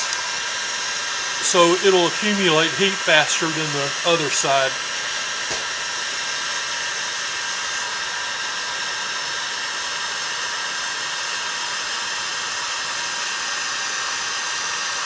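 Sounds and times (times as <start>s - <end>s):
heat gun whistling hiss: 0.0s - 8.7s.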